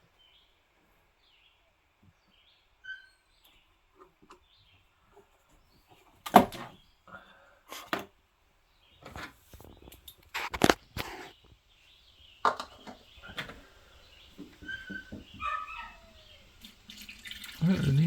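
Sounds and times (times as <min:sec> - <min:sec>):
squirrels knocking and scraping: 0:02.8 - 0:06.9, 0:08.9 - 0:18.0.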